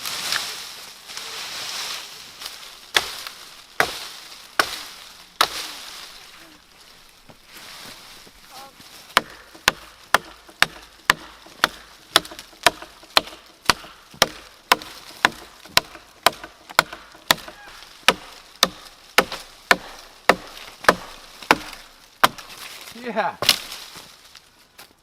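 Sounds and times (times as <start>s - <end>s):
axe chopping wood: 2.9s - 5.7s, 9.2s - 22.7s, 23.4s - 23.8s.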